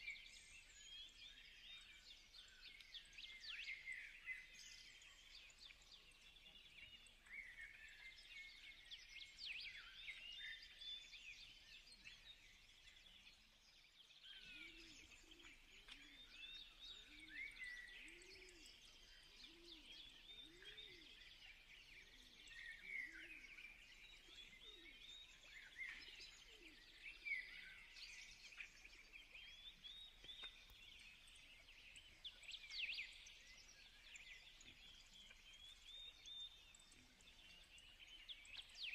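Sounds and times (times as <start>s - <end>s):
faint bird chirping: 0.0s - 38.9s.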